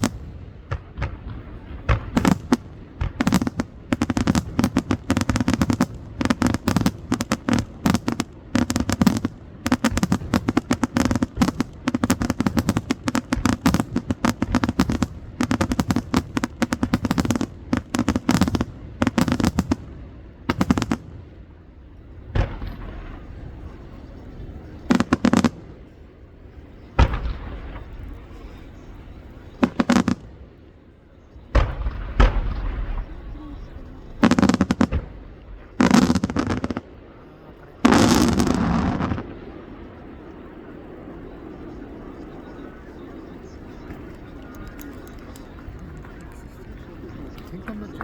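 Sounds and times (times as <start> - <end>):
fireworks booming overhead: 0.0 - 48.0
fireworks crackling: 0.0 - 48.0.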